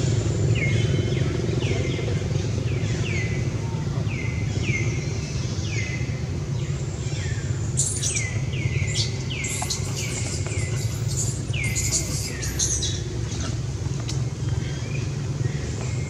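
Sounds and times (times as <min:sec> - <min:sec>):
steady low rumble: 0:00.0 - 0:16.0
bird chirping rapidly: 0:07.8 - 0:13.1.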